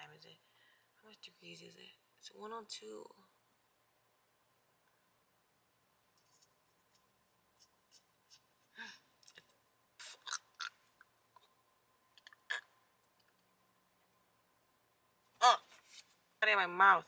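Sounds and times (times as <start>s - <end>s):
faint clicks and taps: 6.1s - 9.6s.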